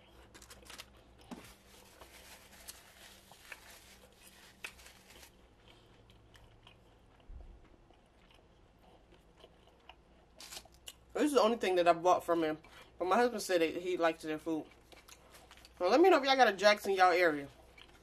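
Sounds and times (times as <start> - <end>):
chewing crunchy sandwich: 0.0 - 11.1, 14.6 - 15.8, 17.4 - 18.0.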